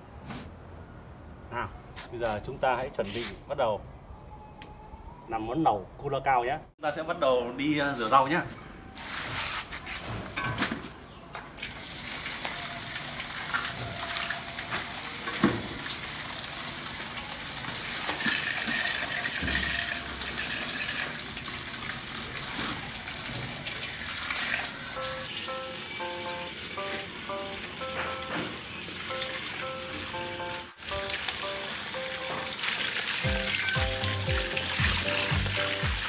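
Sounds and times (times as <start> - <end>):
water splashing in a basin: 11.6 - 24.8, 32.5 - 36.0.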